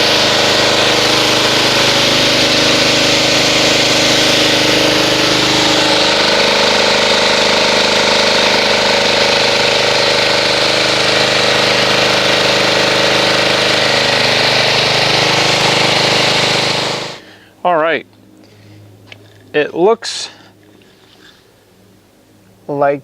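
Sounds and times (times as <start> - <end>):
water jet hissing: 0.0 - 17.3
pressure washer motor humming: 0.0 - 17.4.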